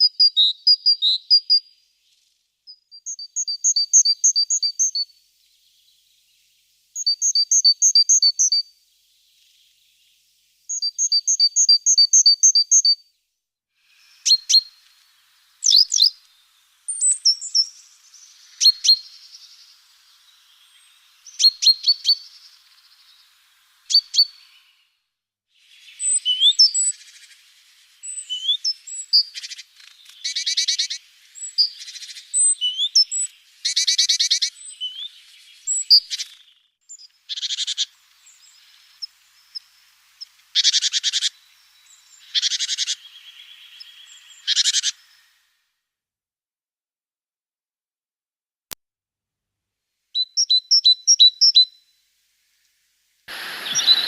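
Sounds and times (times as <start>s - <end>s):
small birds chirping: 0.0s - 45.6s, 50.1s - 54.0s
buzzy rattling bird calls: 13.8s - 24.8s, 25.6s - 45.5s, 53.3s - 54.0s.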